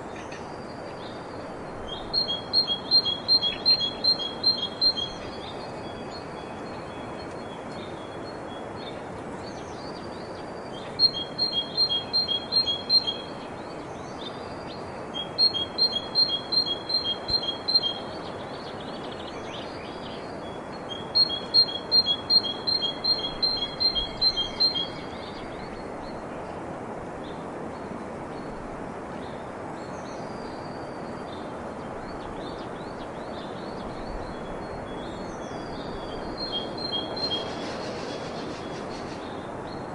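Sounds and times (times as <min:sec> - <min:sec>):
steady background hiss: 0:00.0 - 0:39.9
faint bird chirps: 0:00.2 - 0:08.7, 0:15.2 - 0:25.9
songbird singing high notes: 0:01.9 - 0:05.3, 0:11.0 - 0:13.4, 0:15.2 - 0:18.3, 0:20.9 - 0:25.4, 0:35.6 - 0:38.8.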